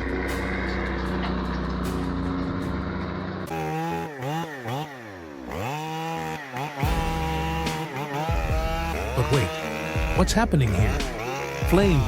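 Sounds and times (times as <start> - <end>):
truck diesel engine running: 0.0 - 4.4, 6.8 - 12.0
chainsaw engine revving: 0.0 - 12.0.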